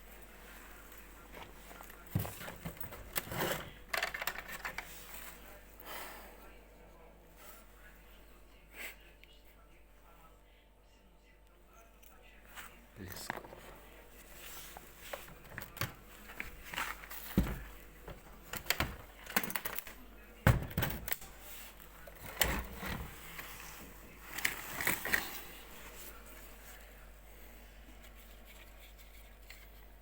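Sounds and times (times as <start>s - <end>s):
knocks and thuds of handling: 2.0s - 4.6s, 15.1s - 19.8s, 20.4s - 21.2s.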